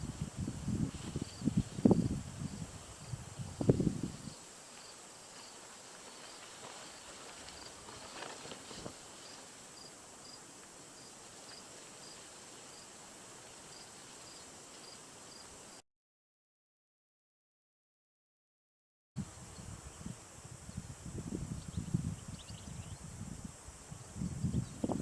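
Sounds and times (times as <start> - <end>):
steady high hiss: 0.0 - 15.8, 19.2 - 25.0
cricket chirping: 0.2 - 15.8
soft rustles: 4.7 - 9.6.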